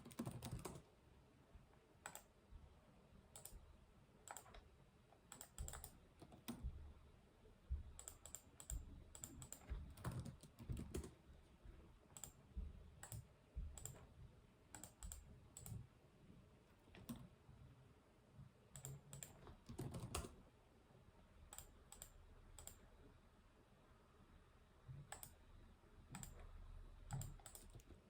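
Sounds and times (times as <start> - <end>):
computer keyboard typing: 0.0 - 0.9, 2.0 - 2.3, 3.3 - 3.6, 4.2 - 4.6, 5.3 - 6.7, 8.0 - 11.2, 12.1 - 12.4, 13.0 - 14.0, 14.7 - 15.8, 18.7 - 20.4, 21.5 - 22.8, 25.1 - 25.4, 26.1 - 26.4, 27.1 - 28.0.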